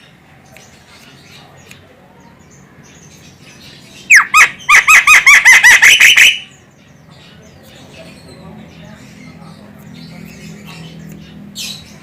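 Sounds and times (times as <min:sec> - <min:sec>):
myna calling with squeaky notes: 0:04.1 - 0:06.6.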